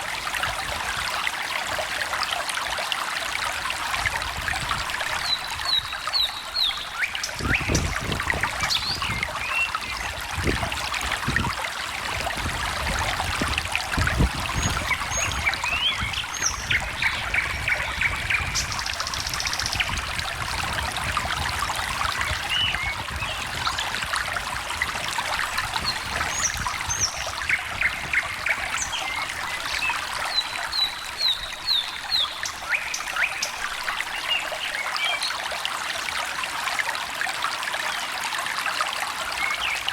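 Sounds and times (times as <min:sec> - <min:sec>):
stream trickling over stones: 0:00.0 - 0:39.9
songbirds chirping: 0:14.6 - 0:20.0.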